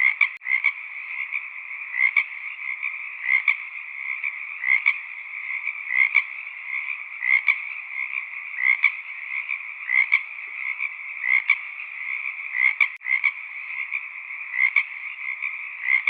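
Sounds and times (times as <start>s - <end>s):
frog chorus: 0.0s - 16.0s.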